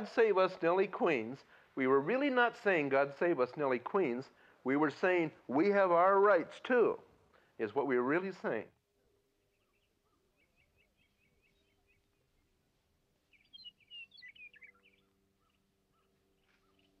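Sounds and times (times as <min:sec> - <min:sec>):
small birds chirping: 0:07.3 - 0:17.0.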